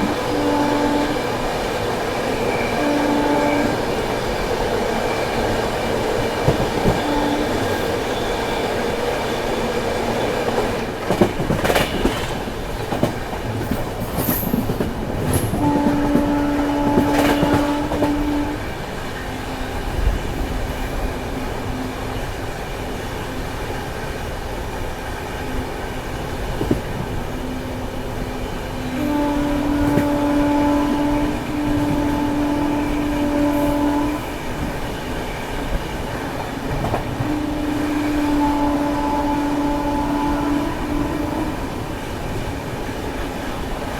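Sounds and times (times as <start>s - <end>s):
train horn blast: 0.0s - 9.6s, 15.3s - 22.0s, 27.3s - 42.4s
rail clacks: 0.0s - 43.9s
train rumbling on rails: 0.0s - 43.9s.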